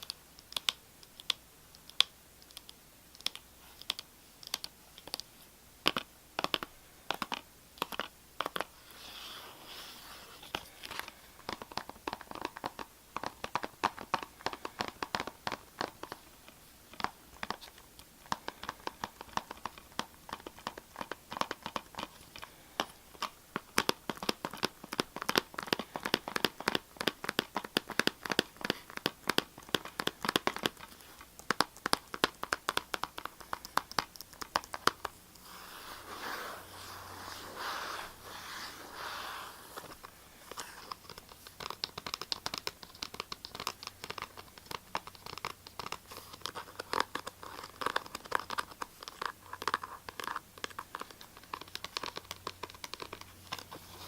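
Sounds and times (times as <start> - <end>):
scratching on a hard object: 16.9 - 54.0.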